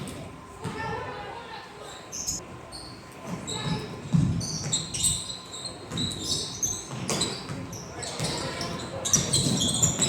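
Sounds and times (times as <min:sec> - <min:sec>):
sneakers squeaking on hardwood floor: 0:02.1 - 0:10.0.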